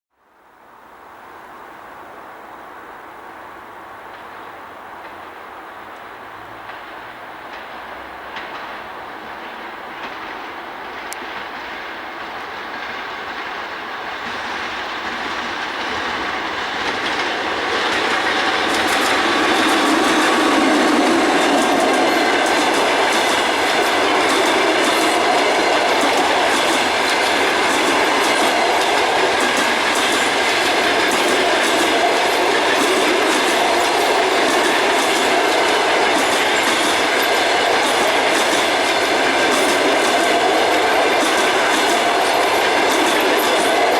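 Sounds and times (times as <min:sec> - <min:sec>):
electric train passing: 0:00.6 - 0:43.9
wheels clacking over rail joints: 0:06.4 - 0:43.9.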